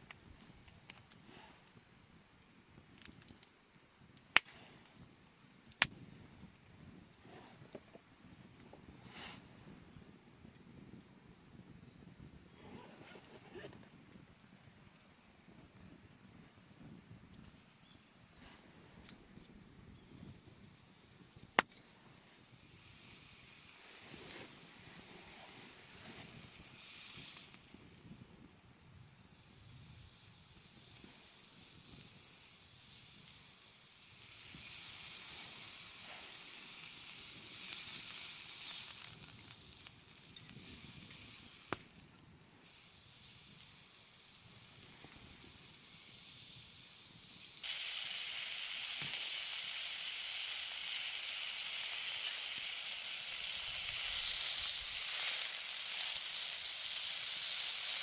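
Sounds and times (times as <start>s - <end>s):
meat sizzling in a frying pan: 22.4s - 28.0s, 29.0s - 41.9s, 42.6s - 58.0s.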